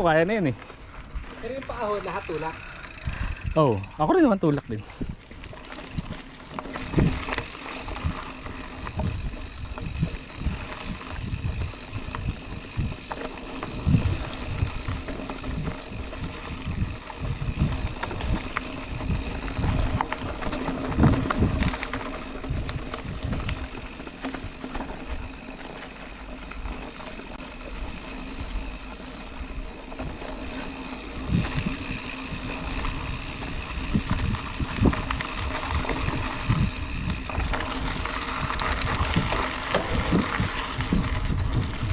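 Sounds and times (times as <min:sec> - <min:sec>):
mountain bike rattling on dirt: 0:00.0 - 0:41.9.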